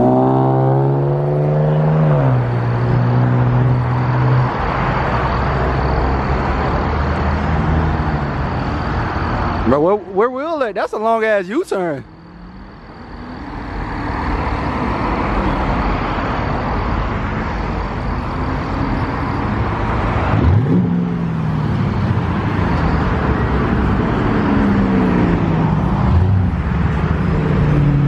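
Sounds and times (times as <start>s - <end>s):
car engine accelerating loud exhaust: 0.0s - 9.6s, 18.2s - 28.0s.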